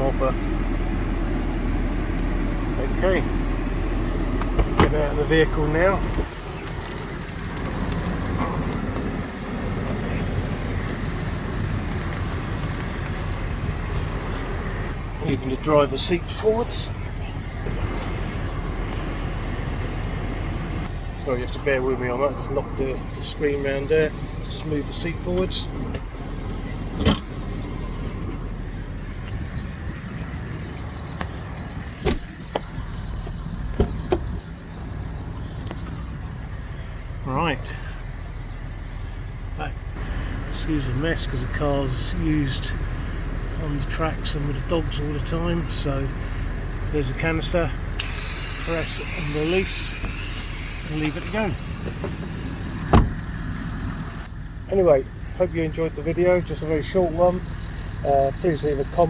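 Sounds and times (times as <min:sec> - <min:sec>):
car engine idling hum: 0:00.0 - 0:59.0
air conditioning blower rushing: 0:48.0 - 0:53.2.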